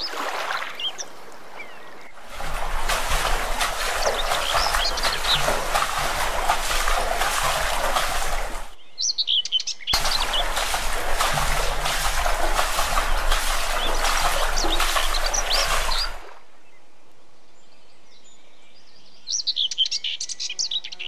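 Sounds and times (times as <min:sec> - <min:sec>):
water splashing from swimming: 0:00.0 - 0:08.8, 0:10.0 - 0:16.5
birds chirping: 0:00.0 - 0:16.9.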